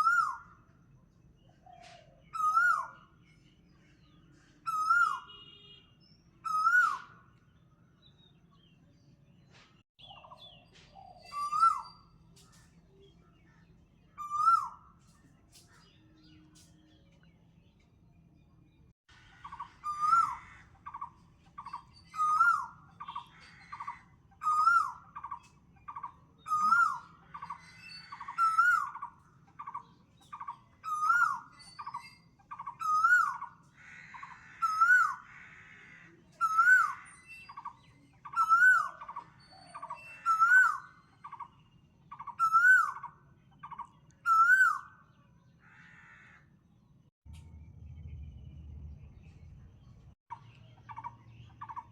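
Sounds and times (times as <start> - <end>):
bird calling with slurred whistle: 6.4 - 7.2, 10.0 - 12.3, 19.5 - 33.6, 36.4 - 45.0.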